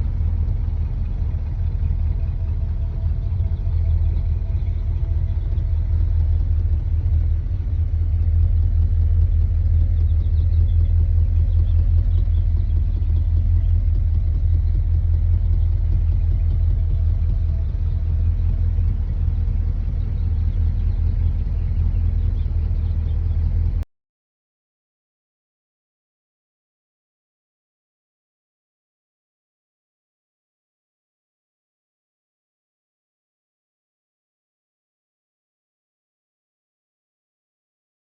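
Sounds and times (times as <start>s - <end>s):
engine idling with deep rumble: 0.0s - 23.9s.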